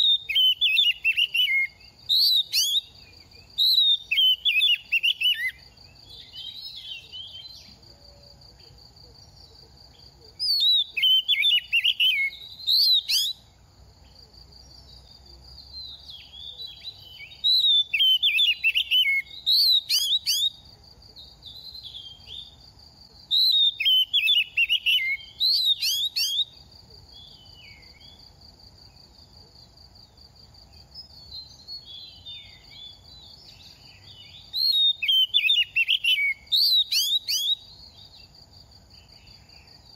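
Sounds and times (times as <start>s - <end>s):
bird singing whistled phrases: 0.0s - 7.7s, 10.4s - 13.4s, 15.8s - 20.6s, 23.3s - 26.6s, 34.0s - 37.7s.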